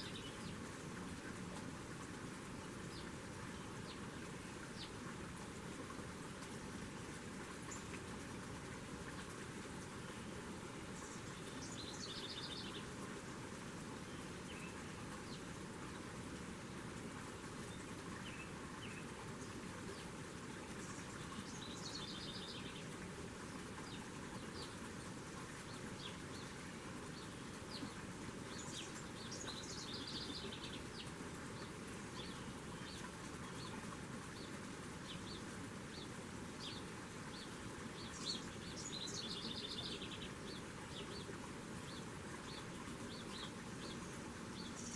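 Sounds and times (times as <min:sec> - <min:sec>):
steady low background noise: 0:00.0 - 0:44.9
small birds trilling: 0:23.8 - 0:44.9.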